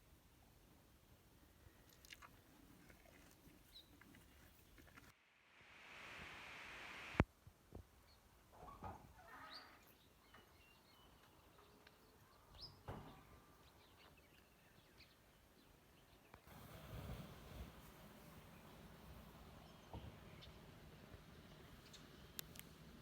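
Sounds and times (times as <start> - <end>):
hiss: 5.3 - 7.2, 16.5 - 19.6.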